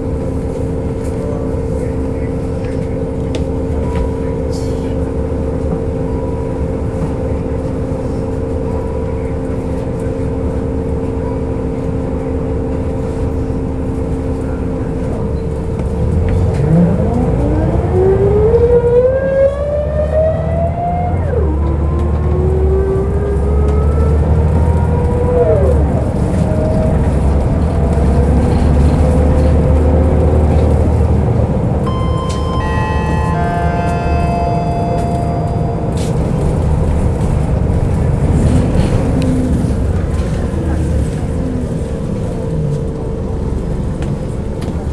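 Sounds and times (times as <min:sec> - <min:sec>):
diesel bus engine: 0:00.0 - 0:44.9
gearbox whining: 0:31.7 - 0:42.3
steady high tone: 0:31.8 - 0:37.3.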